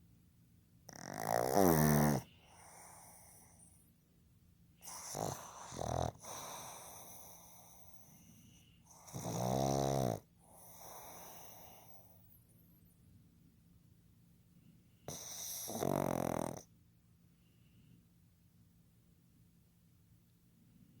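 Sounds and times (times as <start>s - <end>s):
dog snoring: 0.9s - 3.8s, 4.8s - 12.2s, 15.1s - 16.7s.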